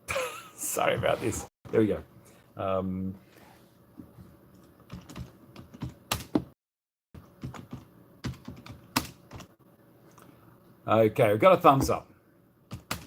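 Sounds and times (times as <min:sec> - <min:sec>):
typing on a computer keyboard: 0:04.9 - 0:06.4, 0:07.2 - 0:09.5, 0:12.7 - 0:13.0.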